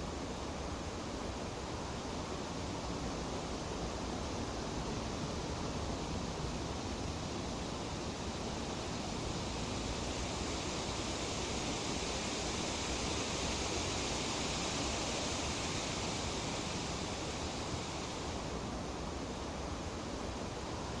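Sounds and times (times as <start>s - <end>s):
breeze rustling tree leaves: 7.3s - 19.0s.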